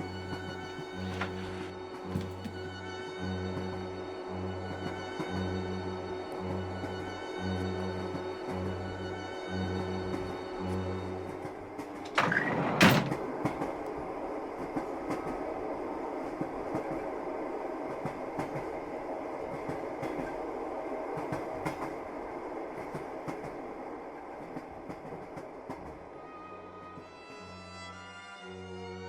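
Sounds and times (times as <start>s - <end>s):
train wheels clickety-clack: 10.1s - 15.6s, 16.2s - 26.2s.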